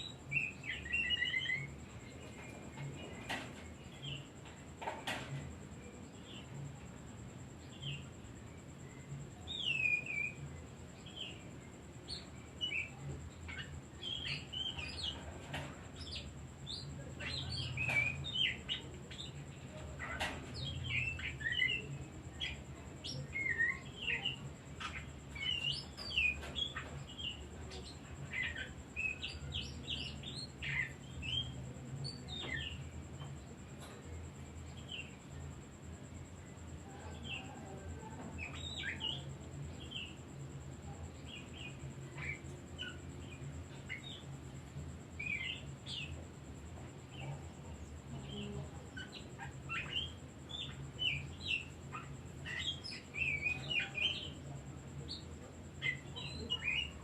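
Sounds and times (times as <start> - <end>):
songbird whistles and chirps: 7.7 - 35.2, 36.4 - 40.2, 46.8 - 57.0.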